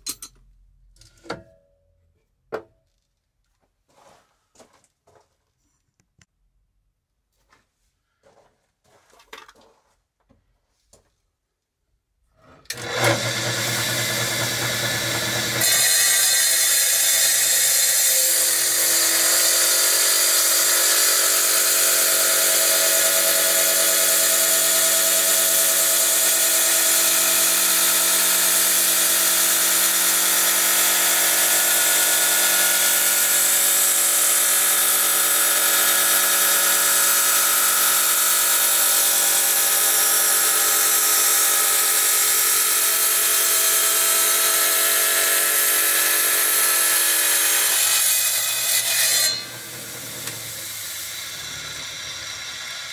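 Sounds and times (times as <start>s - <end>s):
tile saw grinding stone: 12.7s - 52.9s.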